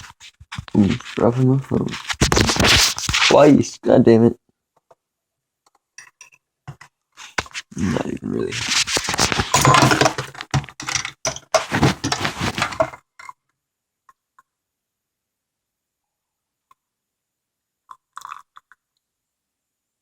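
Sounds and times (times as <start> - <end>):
crunching and rustling handling noise: 8.4 - 13.0.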